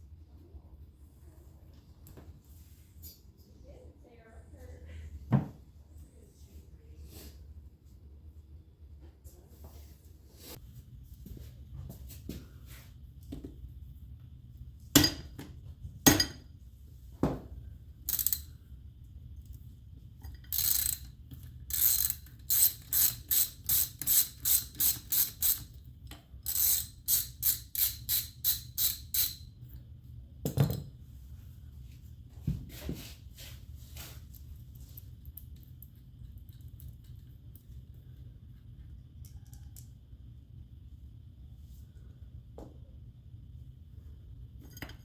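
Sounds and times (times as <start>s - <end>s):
ratchet wrench clicking: 18.0s - 18.6s, 20.2s - 25.8s, 26.4s - 29.5s.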